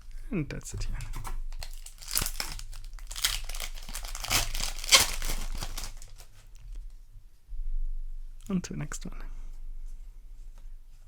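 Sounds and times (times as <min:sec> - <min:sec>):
foil wrapper crinkling and tearing: 0:01.1 - 0:06.8.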